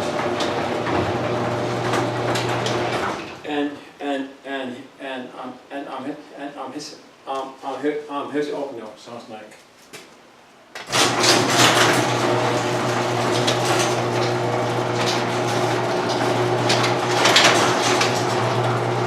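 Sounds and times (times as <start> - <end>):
garage door clacks and rattles: 0.0 - 3.4, 10.8 - 19.0
garage door opener motor hum: 0.0 - 3.4, 10.8 - 19.0.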